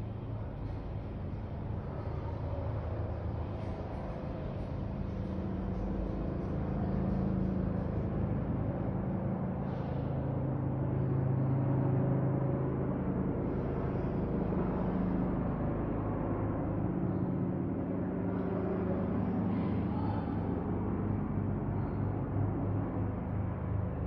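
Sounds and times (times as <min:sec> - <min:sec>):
low mechanical drone: 0:00.0 - 0:24.0.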